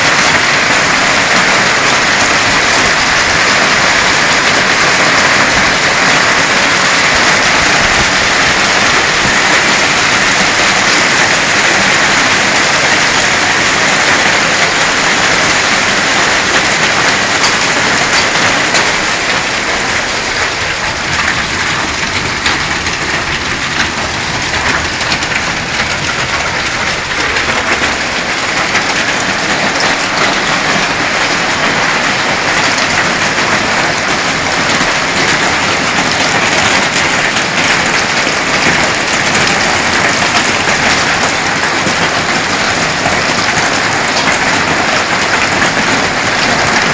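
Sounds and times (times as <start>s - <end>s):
heavy hail pelting down: 0.0s - 46.9s.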